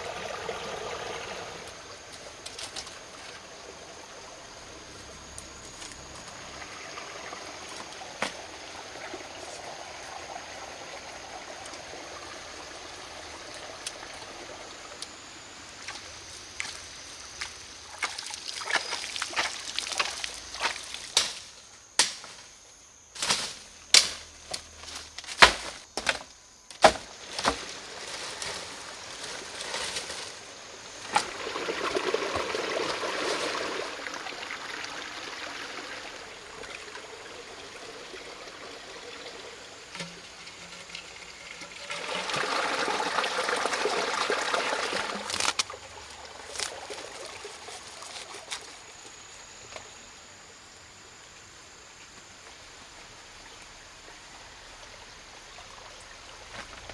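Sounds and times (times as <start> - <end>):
water pouring or splashing: 17.3 - 21.4, 30.9 - 48.6.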